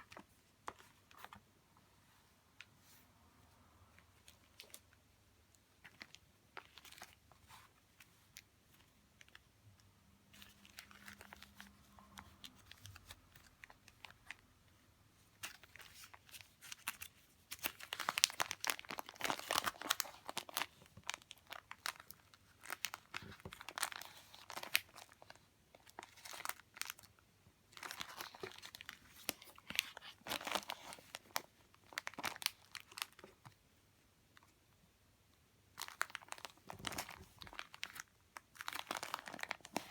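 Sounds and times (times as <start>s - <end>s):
paper and plastic crinkling: 10.3s - 14.4s, 15.4s - 27.1s, 27.7s - 33.6s, 35.8s - 39.9s.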